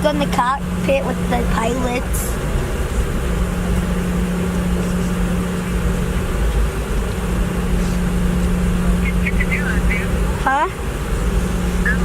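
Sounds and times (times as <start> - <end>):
jet engines and airflow rumble: 0.0 - 12.0
steady cabin hum: 0.0 - 12.0.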